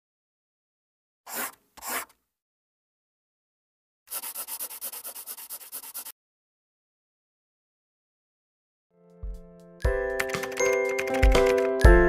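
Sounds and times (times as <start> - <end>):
pencil scratching on paper: 1.3 - 2.2, 4.1 - 6.2.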